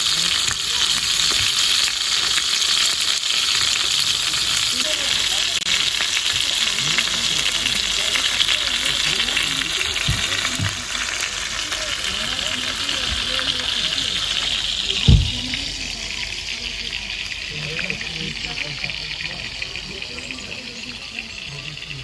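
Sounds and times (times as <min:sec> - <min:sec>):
food sizzling in a pan: 0:00.0 - 0:22.0
low knocks: 0:15.0 - 0:15.6.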